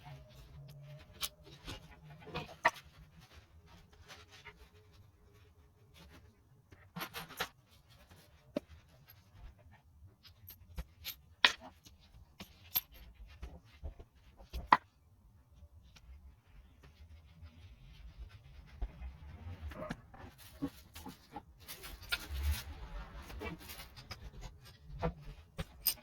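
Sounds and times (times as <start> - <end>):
metal tools clicking and knocking: 24.0 - 26.0.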